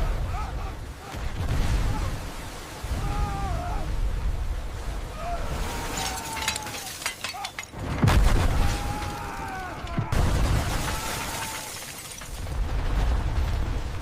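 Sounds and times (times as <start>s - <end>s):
explosion blasts: 10.0s - 11.6s.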